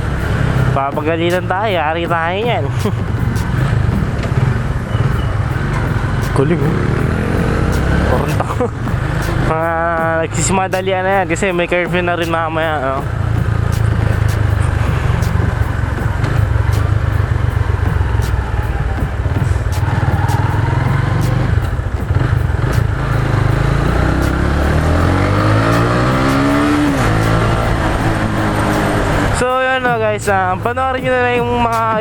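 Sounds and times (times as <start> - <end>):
motorcycle engine running: 0.0 - 32.0
wind on microphone: 11.8 - 32.0.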